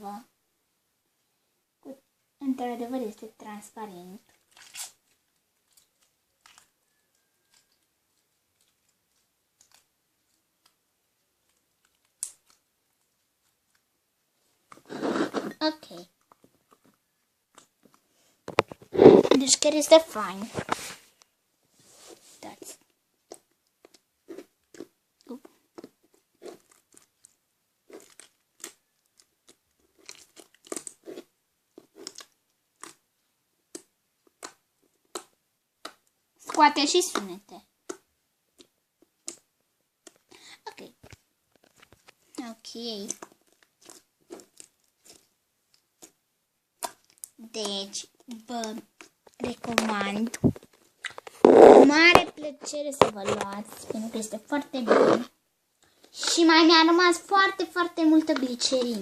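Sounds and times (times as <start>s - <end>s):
slime popping: 4.4s - 5.0s, 46.8s - 52.4s.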